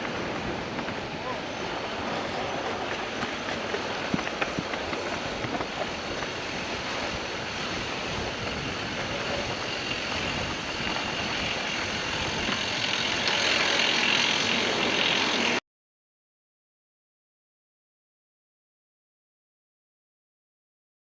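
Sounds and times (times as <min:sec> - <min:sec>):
tyre and wind noise: 0:00.0 - 0:13.2.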